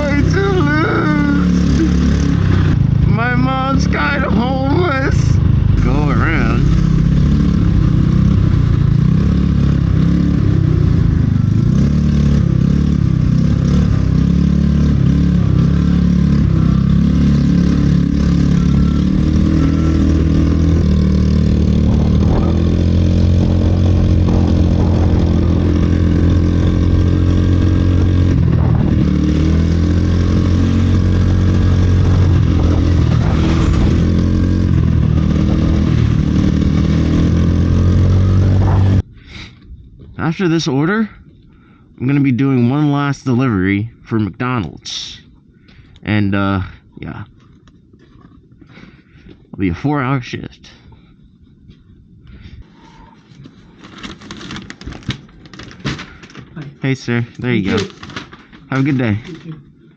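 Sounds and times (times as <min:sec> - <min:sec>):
vehicle engine running: 0:00.0 - 0:39.1.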